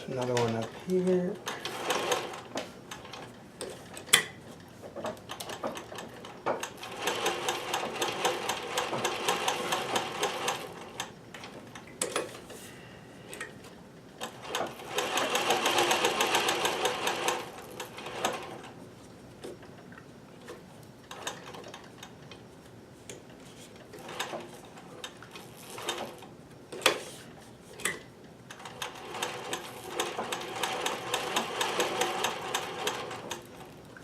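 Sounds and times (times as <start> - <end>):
sewing machine rattling: 0.1 - 4.0, 5.0 - 11.6, 14.2 - 18.8, 21.1 - 22.2, 23.9 - 26.9, 28.5 - 33.7.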